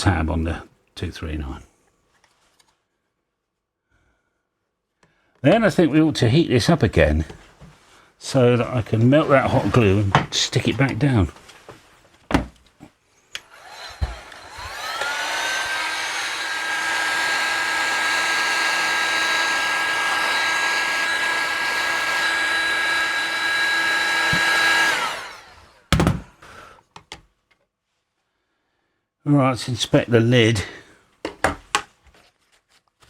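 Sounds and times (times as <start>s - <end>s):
handling knocks: 9.6s - 12.7s, 25.9s - 26.4s, 31.2s - 31.9s
heat gun fan whine: 13.4s - 26.4s.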